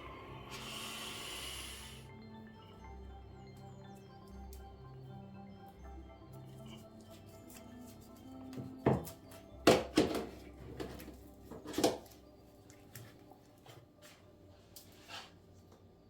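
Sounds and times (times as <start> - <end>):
soft background music: 0.0 - 16.0
objects knocking and clattering: 8.6 - 12.1.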